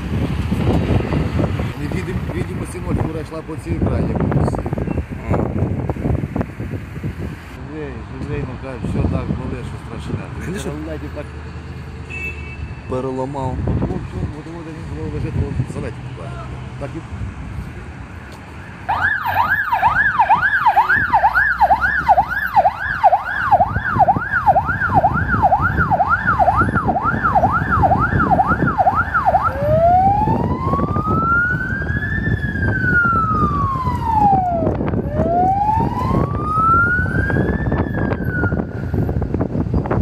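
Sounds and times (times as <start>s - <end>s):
low vehicle rumble: 13.5s - 40.0s
emergency siren: 18.8s - 39.4s.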